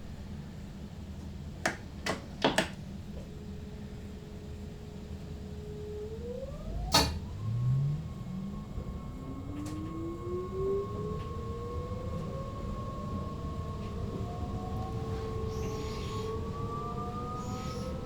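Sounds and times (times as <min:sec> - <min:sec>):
low running rumble: 0:00.0 - 0:18.0
electric train motors whining: 0:05.4 - 0:18.0.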